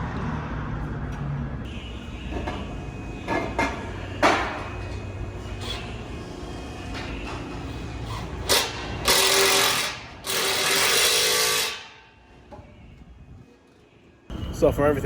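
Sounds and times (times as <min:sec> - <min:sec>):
power tool whining: 0:07.2 - 0:12.0.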